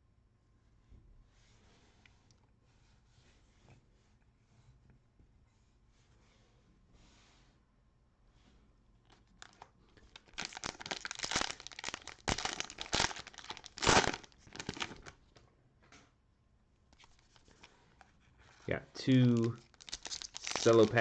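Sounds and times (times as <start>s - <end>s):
cellophane wrapper tearing and crinkling: 9.4s - 15.2s, 19.2s - 21.0s.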